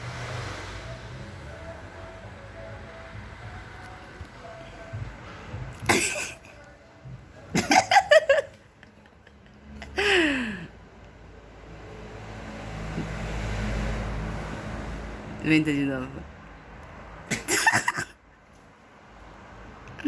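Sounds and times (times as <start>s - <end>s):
person laughing: 5.9s - 6.5s, 7.5s - 10.7s, 17.3s - 18.2s.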